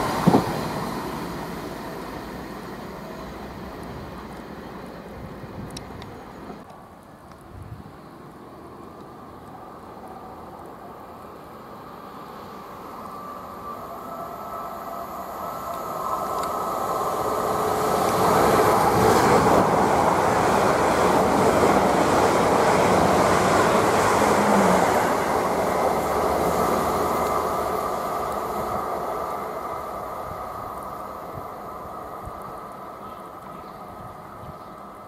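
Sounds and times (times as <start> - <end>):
electric train passing at speed: 0.0 - 35.0.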